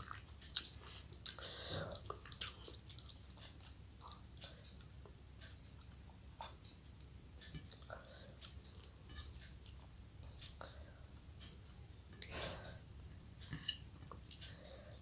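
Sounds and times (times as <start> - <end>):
chewing with wet mouth clicks: 0.0 - 9.8, 13.5 - 14.6.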